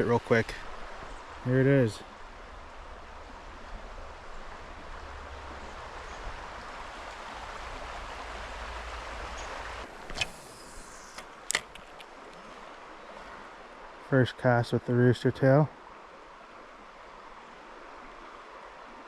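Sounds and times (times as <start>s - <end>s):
creek water flowing: 0.0s - 19.0s
sharp clicks: 10.0s - 12.4s.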